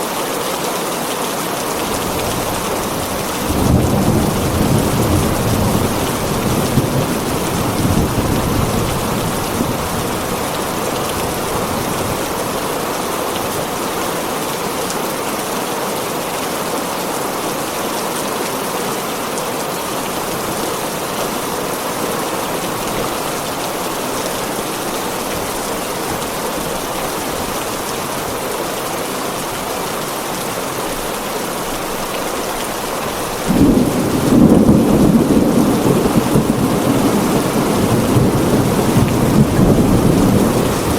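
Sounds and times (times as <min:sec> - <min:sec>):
heavy rain on a tin roof: 0:00.0 - 0:40.9
thunder rumble: 0:33.4 - 0:40.9.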